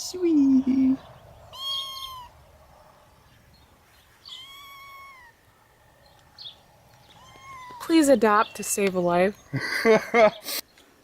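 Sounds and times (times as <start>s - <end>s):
kitten meowing: 1.5s - 2.4s, 4.2s - 5.5s, 7.0s - 8.0s.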